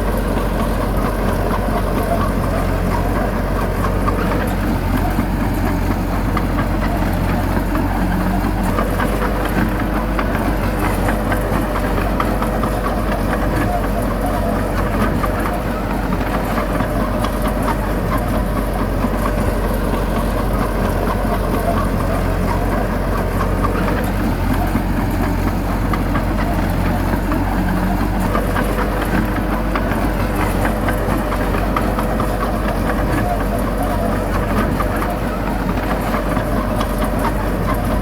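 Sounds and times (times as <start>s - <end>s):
heavy diesel engine running: 0.0s - 38.0s.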